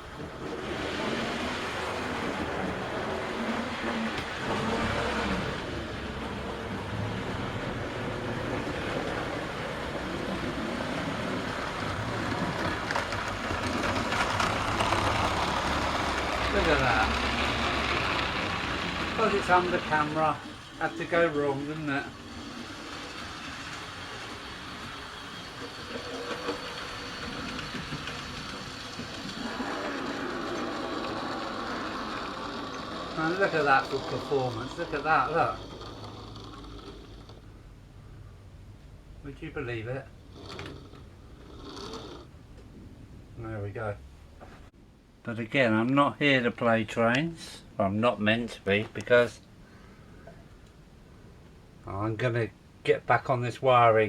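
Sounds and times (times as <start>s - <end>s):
model train running on track: 0.0s - 37.4s
wheels clicking over rail joints: 0.0s - 37.5s, 40.1s - 42.7s.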